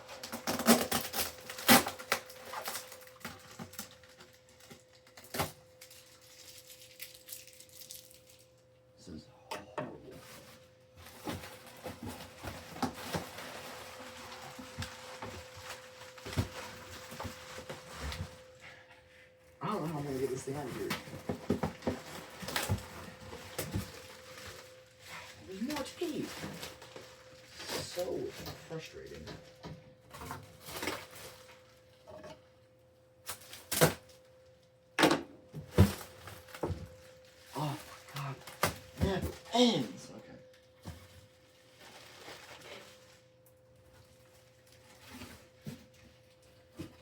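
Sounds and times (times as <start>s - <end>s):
plastic wrap crinkling: 0.0s - 8.6s, 10.2s - 18.6s, 19.8s - 29.2s, 35.7s - 39.8s, 40.4s - 47.0s
tape and plastic wrap ripping: 0.2s - 8.4s, 33.2s - 34.2s.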